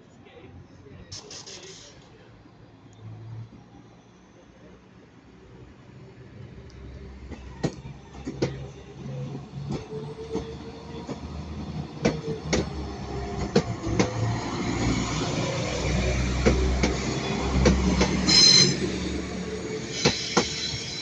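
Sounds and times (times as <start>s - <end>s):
train rumble: 6.2s - 21.0s
high wheel squeal: 17.2s - 21.0s.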